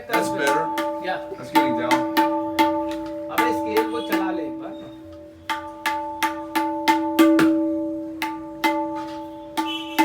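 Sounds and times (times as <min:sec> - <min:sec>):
tabla drum strokes: 0:00.0 - 0:10.0.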